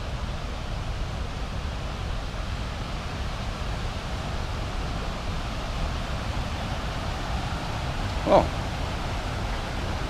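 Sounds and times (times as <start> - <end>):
waterfall rushing: 4.5 - 10.0.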